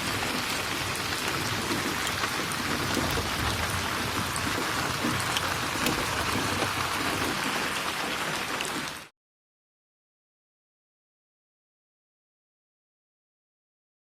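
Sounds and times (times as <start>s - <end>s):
raindrop ticks: 0.0s - 9.1s
steady rain falling: 0.0s - 9.1s.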